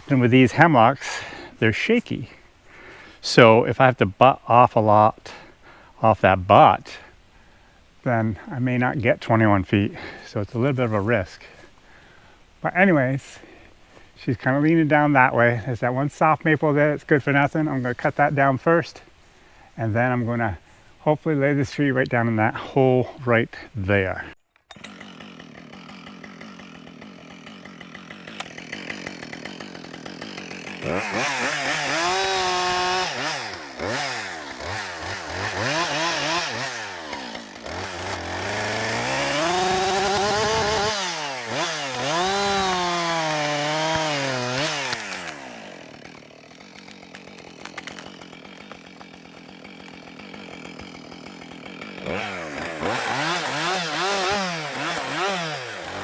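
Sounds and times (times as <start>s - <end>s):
chainsaw idling and revving: 0.0s - 7.6s, 24.0s - 56.0s.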